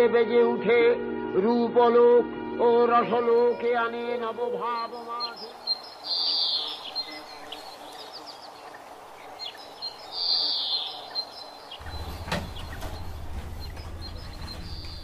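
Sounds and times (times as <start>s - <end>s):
birds chirping: 2.6s - 15.0s
low steady rumble: 11.8s - 15.0s.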